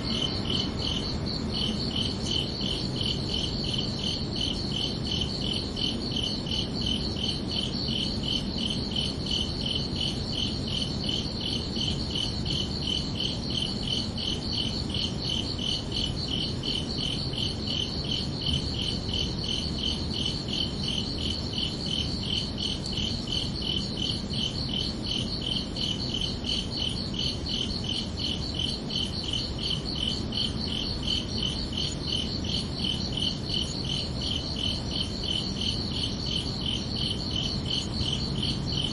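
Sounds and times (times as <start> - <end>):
crickets chirping: 0.0 - 38.9
low background hiss: 0.0 - 38.9.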